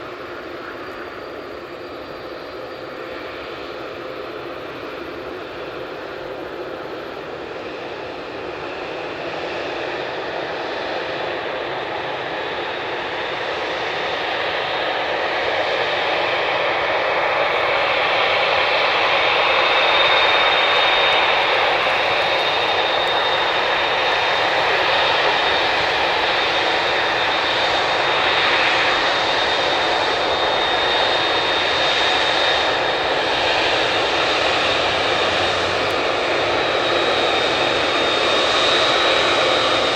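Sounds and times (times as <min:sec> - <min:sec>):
high steady engine whine: 0:00.0 - 0:39.9
jet engines rushing: 0:00.0 - 0:39.9.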